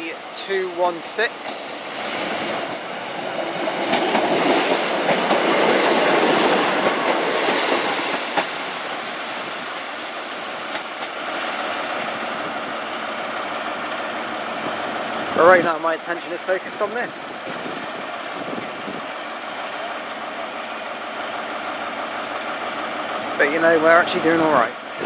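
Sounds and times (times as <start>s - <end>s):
train wheels clattering over rails: 1.4s - 12.6s.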